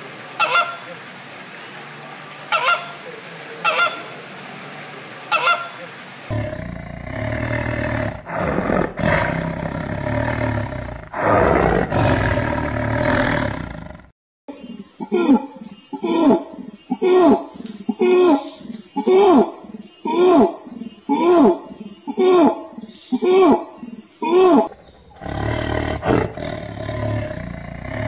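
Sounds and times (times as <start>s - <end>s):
flamingos honking: 0.0s - 6.4s
big cat growling: 6.3s - 14.1s, 24.3s - 28.0s.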